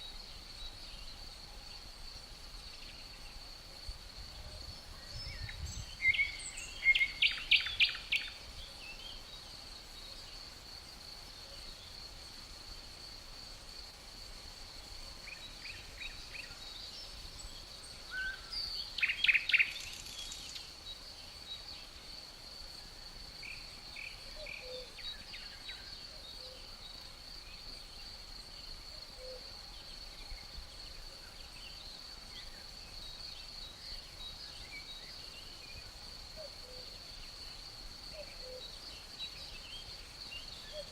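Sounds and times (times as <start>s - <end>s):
high-pitched insect trill: 0.0s - 40.9s
songbirds chirping: 0.0s - 40.9s.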